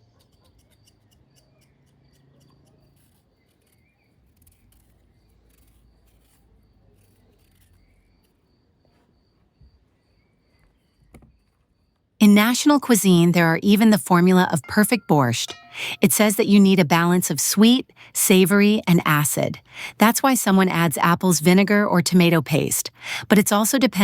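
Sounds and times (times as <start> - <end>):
faint high pulsing tone: 12.2 - 24.0.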